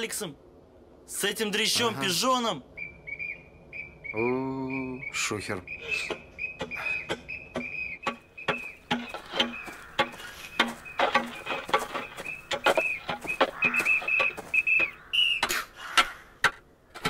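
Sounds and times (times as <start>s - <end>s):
shovels scraping frozen ground: 8.1s - 17.0s.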